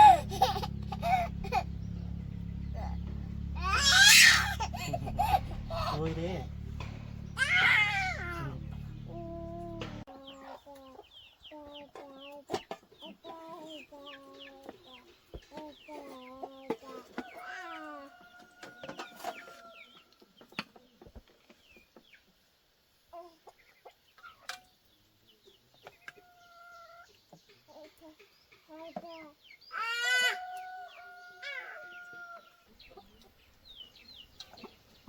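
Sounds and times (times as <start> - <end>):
high falling chirps: 0.0 - 9.8
chickens clucking: 0.0 - 22.4, 25.3 - 35.0.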